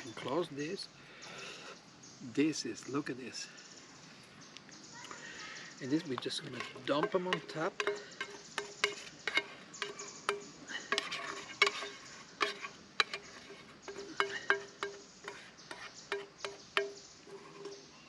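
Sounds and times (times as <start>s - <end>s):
utensil scraping food container: 6.4s - 16.6s.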